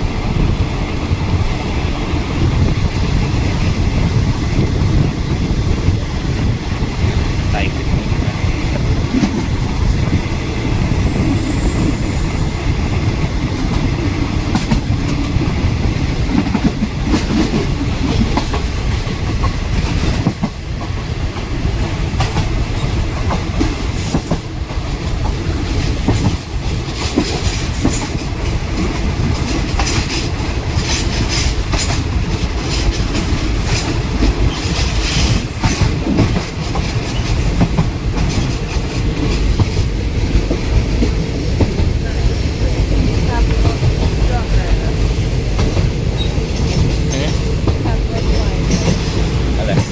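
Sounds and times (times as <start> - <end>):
train wheels rumbling on track: 0.0 - 49.9
clatter of wheels and carriages: 45.6 - 49.9.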